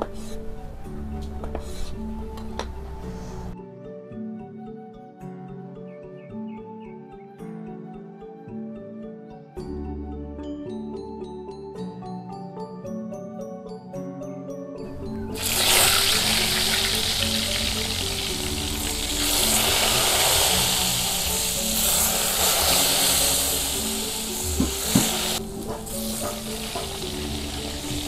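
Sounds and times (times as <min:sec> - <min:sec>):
background music: 0:00.0 - 0:28.0
frying in hot oil: 0:15.3 - 0:28.0.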